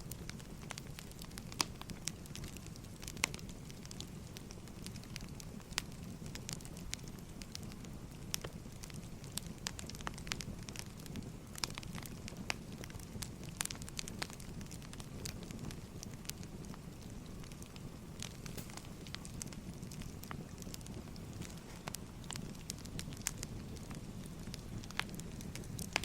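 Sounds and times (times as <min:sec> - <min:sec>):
firewood crackling and popping: 0:00.0 - 0:26.0
low rumble of flame: 0:00.0 - 0:26.0.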